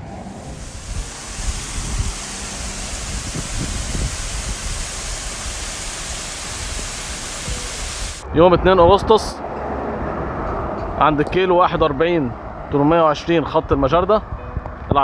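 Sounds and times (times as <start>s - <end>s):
water rushing: 0.0s - 8.2s.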